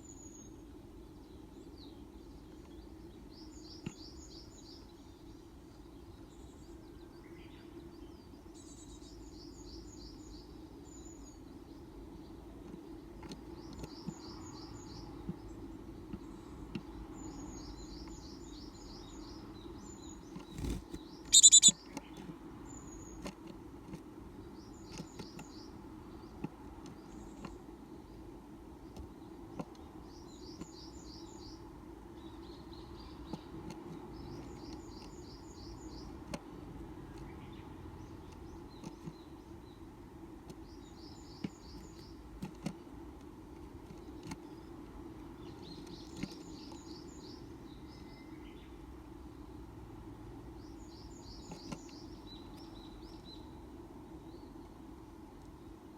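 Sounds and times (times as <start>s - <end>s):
birds calling high thin notes: 20.6s - 21.7s.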